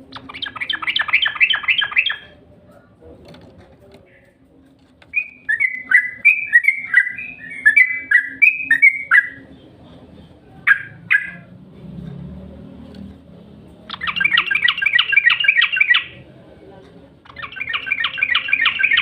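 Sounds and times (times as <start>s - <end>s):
bulbul singing: 0.0s - 3.0s, 5.1s - 11.6s, 13.8s - 16.4s, 17.1s - 19.0s.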